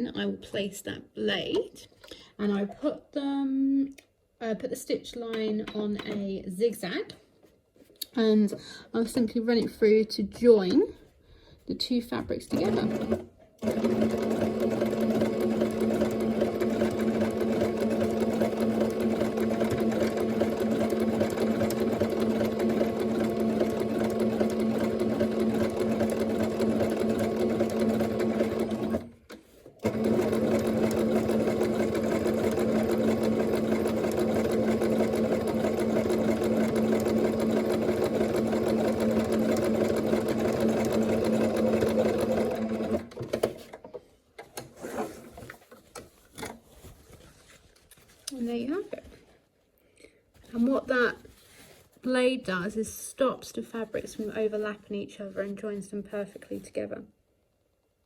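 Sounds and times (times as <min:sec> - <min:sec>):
sewing machine running: 0:12.5 - 0:29.1, 0:29.8 - 0:43.5.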